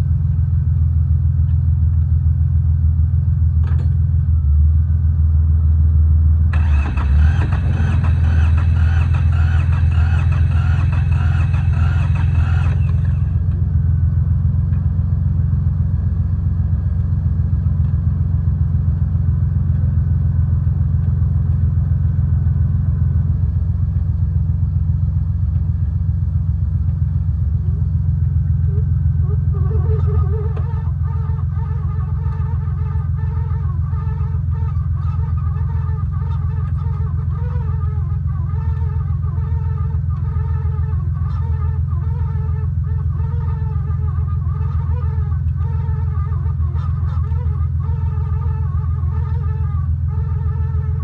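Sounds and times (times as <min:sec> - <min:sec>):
diesel tractor engine running: 0:00.0 - 0:51.0
geese honking: 0:06.6 - 0:13.3, 0:29.2 - 0:51.0.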